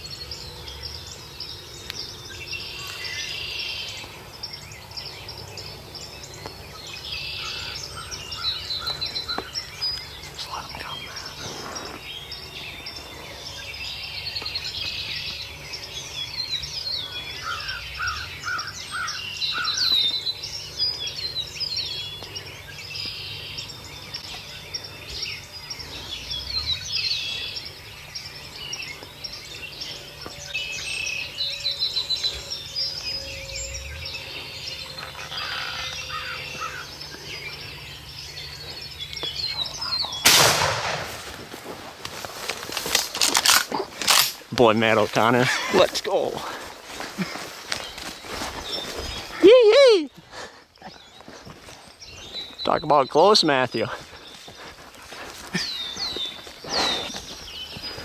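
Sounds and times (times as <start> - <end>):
lower repeated bird calls: 0.0 - 41.5, 42.4 - 58.0
songbirds chirping: 0.0 - 58.0
shotgun blast: 40.2 - 41.3.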